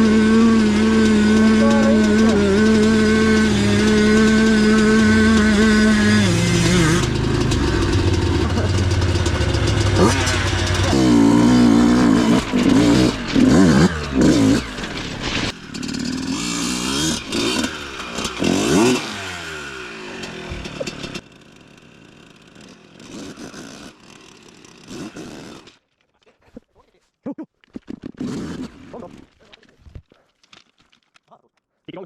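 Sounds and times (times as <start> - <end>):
knocks and rattles: 0.0 - 19.1, 20.2 - 21.2
engine revving: 0.0 - 21.3.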